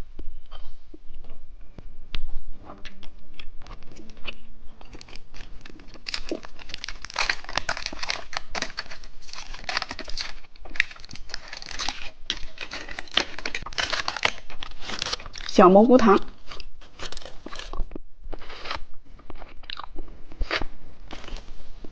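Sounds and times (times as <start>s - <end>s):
plastic wrapper crinkling: 3.7s - 19.5s.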